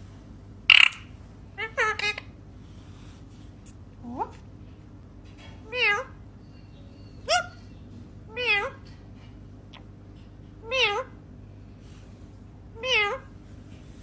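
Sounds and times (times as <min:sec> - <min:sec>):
bird mimicking cat meows: 0:05.7 - 0:06.2, 0:12.8 - 0:13.3.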